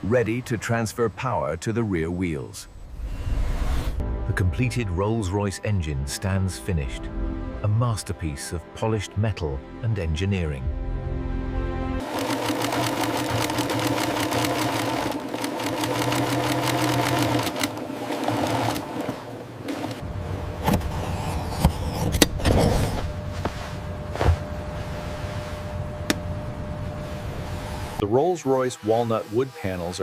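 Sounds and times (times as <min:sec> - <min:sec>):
faint steady hum: 0:19.4 - 0:28.1.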